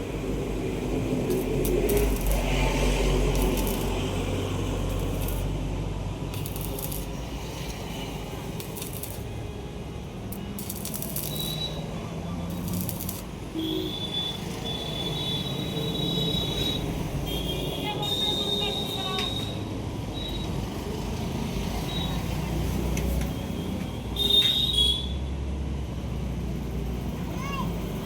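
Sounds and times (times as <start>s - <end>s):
low workshop hum: 0.0s - 14.0s
arc welding crackle: 0.6s - 9.5s, 10.1s - 19.6s.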